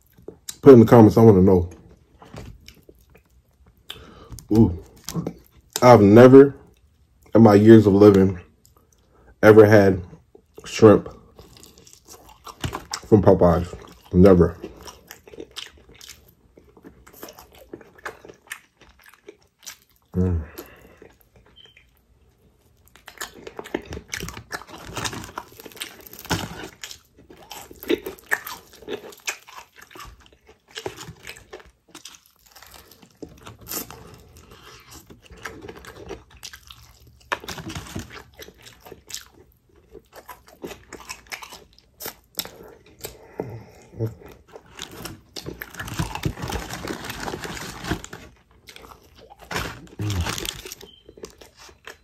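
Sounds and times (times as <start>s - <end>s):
crunching bites and chewing: 1.7s - 6.0s, 10.2s - 52.0s
person humming: 20.2s - 20.6s, 50.0s - 50.4s.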